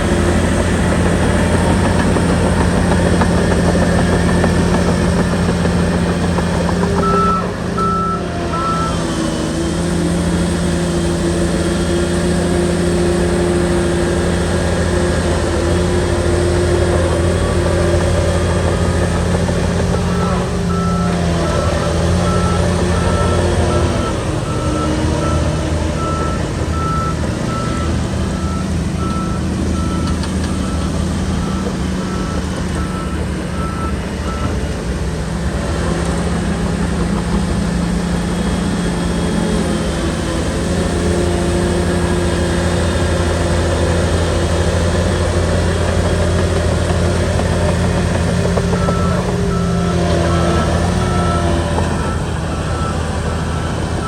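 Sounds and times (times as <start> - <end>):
bulldozer diesel engine: 0.0 - 54.0
reversing alarm beeping: 0.2 - 9.5, 17.3 - 34.8, 48.2 - 54.0.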